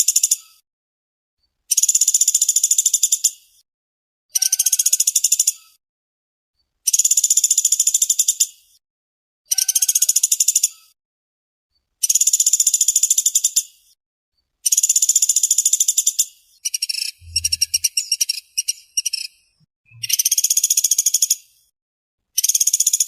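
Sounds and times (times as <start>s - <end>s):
woodpecker trilling: 14.7s - 21.4s.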